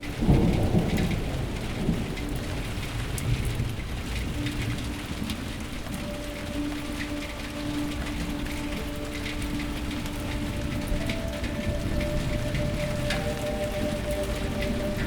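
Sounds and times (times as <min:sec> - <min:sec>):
storm rumble with hiss: 0:00.0 - 0:15.0
held low note: 0:04.4 - 0:15.0.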